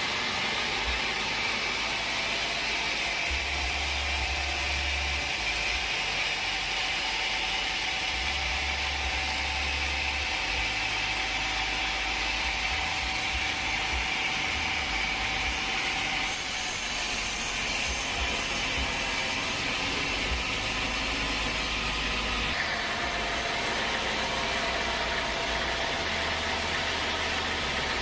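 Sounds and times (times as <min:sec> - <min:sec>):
sawmill saw cutting log: 0:00.0 - 0:28.0.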